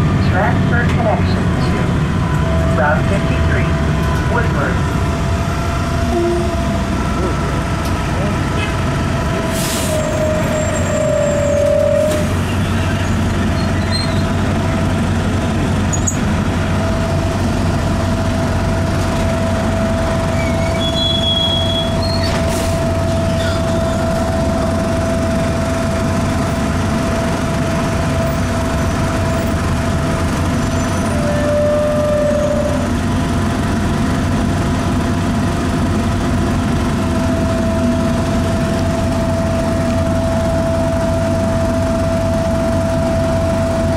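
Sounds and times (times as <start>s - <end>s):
diesel bus engine running: 0.0s - 43.9s.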